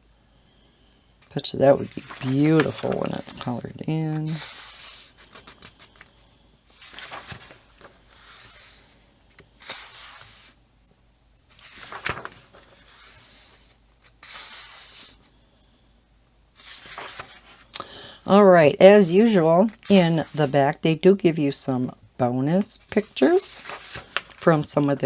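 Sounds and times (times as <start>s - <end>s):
paper pages turning: 1.3s - 10.6s, 11.5s - 15.2s, 16.6s - 17.7s, 22.8s - 25.0s.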